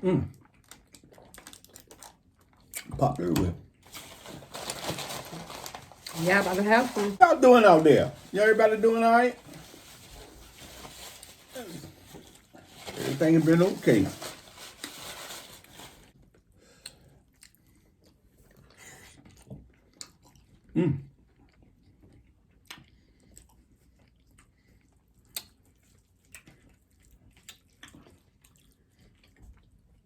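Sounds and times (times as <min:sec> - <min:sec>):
chewing and biting food: 0:16.8 - 0:30.0.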